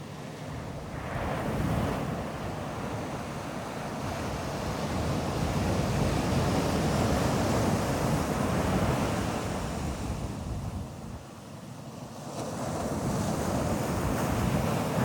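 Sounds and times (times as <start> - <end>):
wind on microphone: 0.6 - 11.2.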